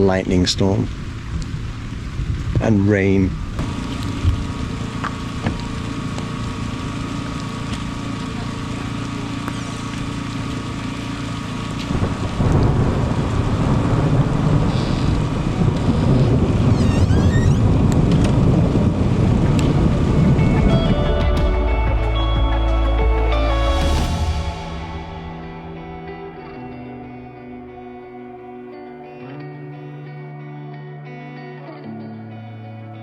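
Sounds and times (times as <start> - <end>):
steady rain: 0.0 - 26.8
low rumble of thunder: 11.8 - 22.1.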